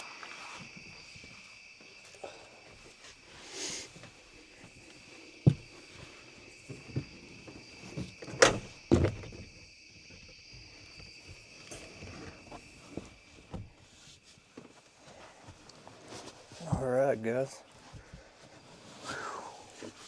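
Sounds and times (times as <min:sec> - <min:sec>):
crickets chirping: 0:00.0 - 0:20.0
knocks and thumps in truck bed: 0:06.8 - 0:09.6.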